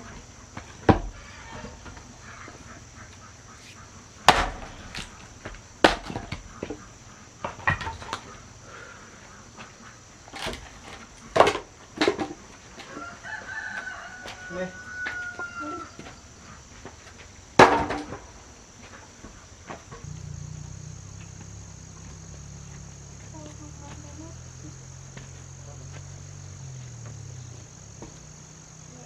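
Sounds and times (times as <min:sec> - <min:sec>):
insects shrilling: 0:19.8 - 0:29.0
low steady hum: 0:20.0 - 0:29.0.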